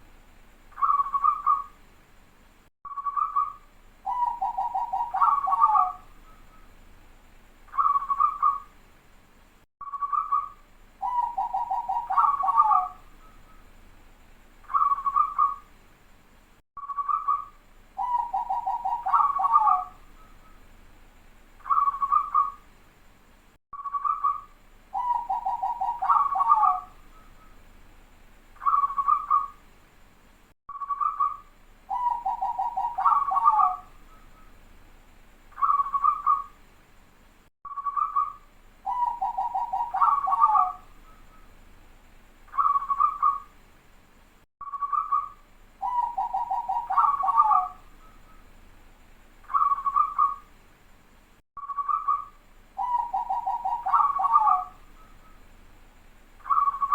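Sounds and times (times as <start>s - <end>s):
dove cooing and trilling: 0.8s - 1.7s, 3.0s - 6.1s, 7.7s - 8.7s, 10.0s - 13.0s, 14.7s - 15.6s, 18.0s - 20.3s, 21.6s - 22.6s, 23.9s - 27.0s, 28.6s - 29.6s, 30.9s - 34.5s, 35.6s - 36.5s, 37.8s - 41.4s, 42.5s - 43.5s, 44.8s - 48.4s, 49.5s - 50.5s, 51.8s - 55.4s, 56.4s - 56.9s.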